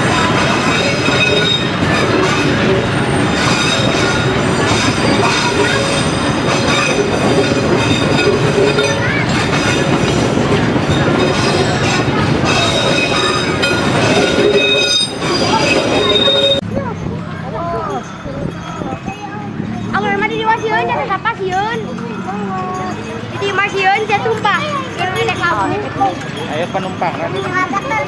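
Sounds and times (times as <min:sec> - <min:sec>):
metallic wheel squealing: 0:00.0 - 0:16.6
train wheels rumbling on rail: 0:00.0 - 0:17.4.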